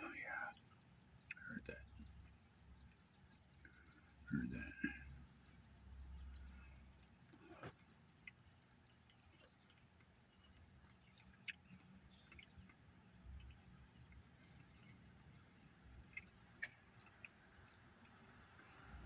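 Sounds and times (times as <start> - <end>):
faint high chirping: 0.0 - 12.7.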